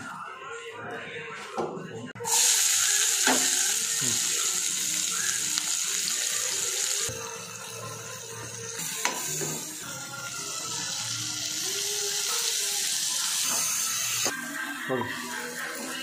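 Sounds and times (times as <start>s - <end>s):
shallots sizzling in oil: 2.2s - 7.1s.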